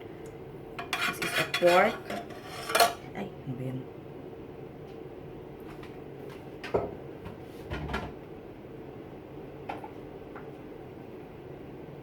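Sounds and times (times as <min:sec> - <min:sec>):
kitchen knocks and clunks: 0:06.6 - 0:08.2.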